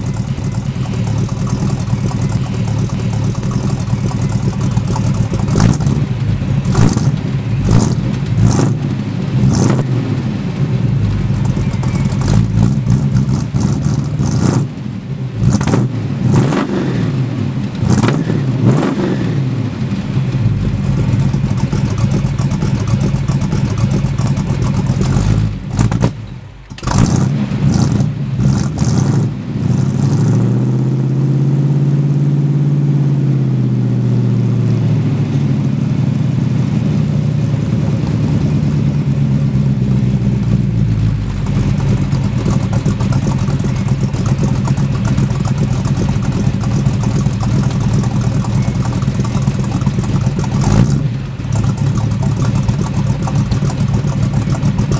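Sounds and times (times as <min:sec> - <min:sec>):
engine knocks: 0:00.0 - 0:30.5, 0:35.1 - 0:54.9
car engine running: 0:00.0 - 0:54.9.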